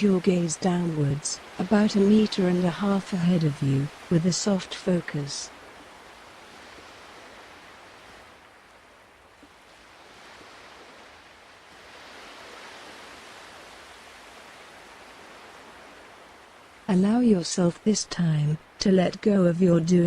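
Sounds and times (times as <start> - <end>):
ocean waves washing onto shore: 0.0 - 17.7.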